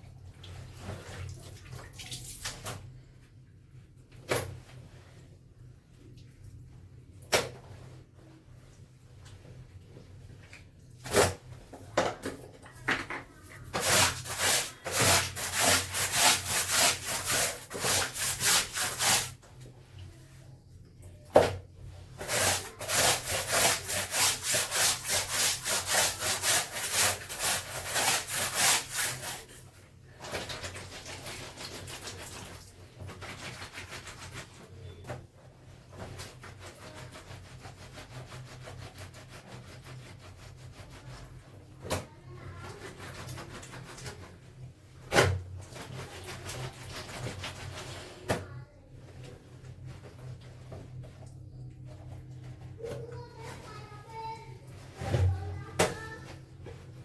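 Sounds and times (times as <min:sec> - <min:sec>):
clothes scrubbed by hand: 0:13.4 - 0:19.6, 0:22.0 - 0:34.8, 0:35.6 - 0:57.0.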